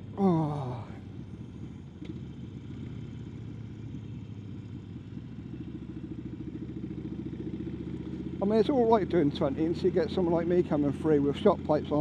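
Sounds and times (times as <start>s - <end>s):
motorcycle engine exhaust pulsing: 0.0s - 12.0s.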